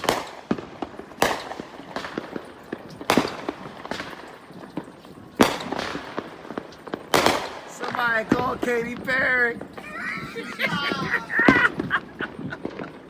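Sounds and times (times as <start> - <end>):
crackling firework pops: 0.0 - 10.3
firework booms with echo: 0.0 - 10.3, 10.9 - 13.0.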